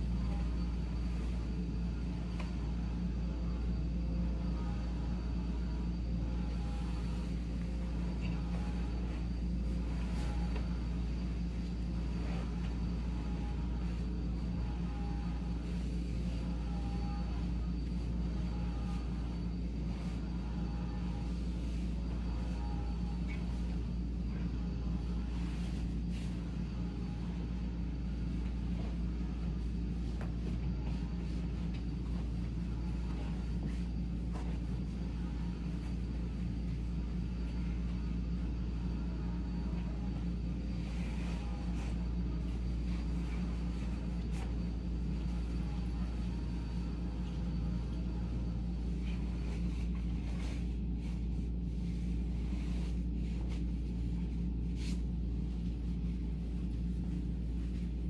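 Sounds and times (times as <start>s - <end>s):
vacuum cleaner running: 0.0s - 58.0s
bed linen rustling: 6.7s - 20.2s, 25.0s - 38.3s, 40.1s - 58.0s.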